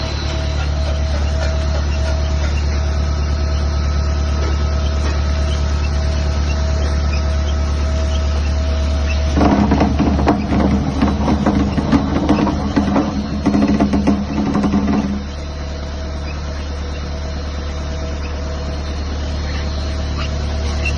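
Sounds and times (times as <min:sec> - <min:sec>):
pump machine humming: 0:00.0 - 0:20.9
rapid irregular clattering: 0:04.4 - 0:15.5.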